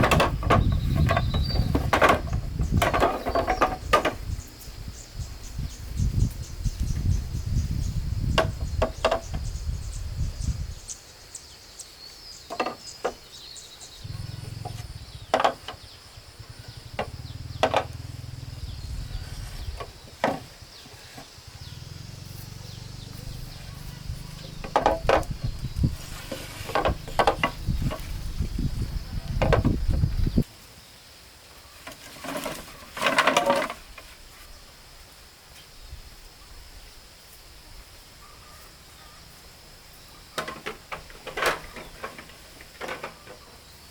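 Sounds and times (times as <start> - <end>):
sharp knocks and clatter: 0.0 - 4.4, 8.3 - 9.4, 12.5 - 13.2, 14.5 - 15.9, 16.9 - 18.1, 19.8 - 20.6, 24.4 - 25.6, 26.2 - 28.2, 29.4 - 30.0, 31.9 - 34.0, 40.4 - 43.4
high insect drone: 0.0 - 43.9
low rumbling noise: 14.0 - 15.4, 16.0 - 20.1.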